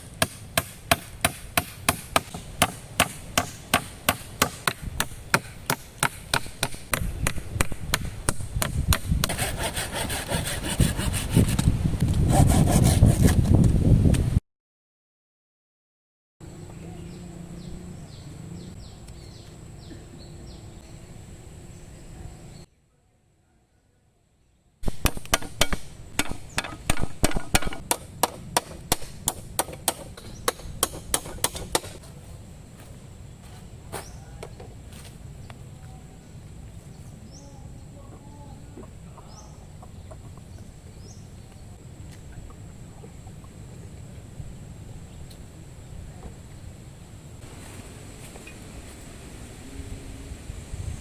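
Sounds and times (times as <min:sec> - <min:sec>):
wood being chopped: 0:00.2 - 0:09.5, 0:24.8 - 0:32.0
hand saw cutting wood: 0:09.2 - 0:13.5
sharp knocks on wood: 0:24.8 - 0:32.0.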